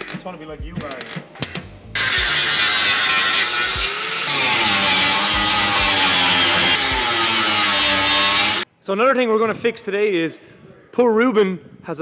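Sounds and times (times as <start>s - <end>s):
angle grinder on steel: 2.0s - 8.6s.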